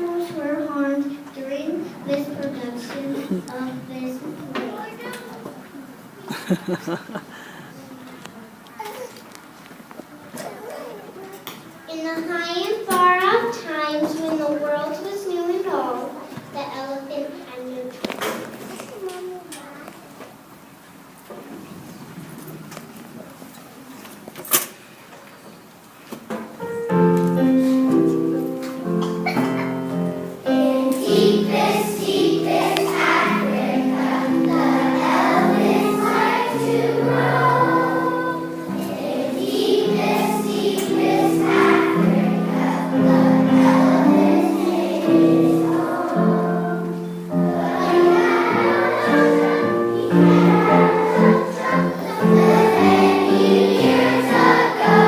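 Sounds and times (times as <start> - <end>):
musical accompaniment: 26.6 - 55.0
children singing together: 27.4 - 55.0.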